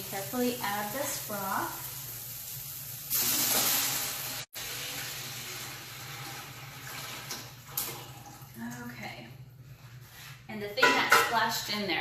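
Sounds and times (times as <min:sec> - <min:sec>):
sizzling pot: 0:00.0 - 0:07.8.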